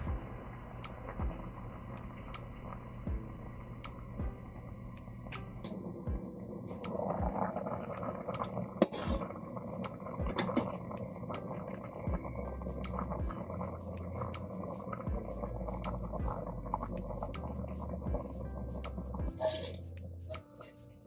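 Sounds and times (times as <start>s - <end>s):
curry bubbling in a pot: 5.7s - 20.8s
spoon clinking against pot: 19.3s - 20.9s.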